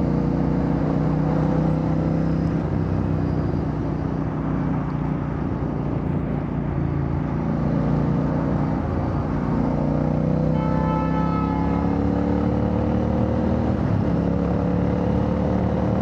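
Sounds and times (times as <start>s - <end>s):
wind and road noise: 0.0s - 16.0s
motorcycle engine cruising: 11.3s - 16.0s.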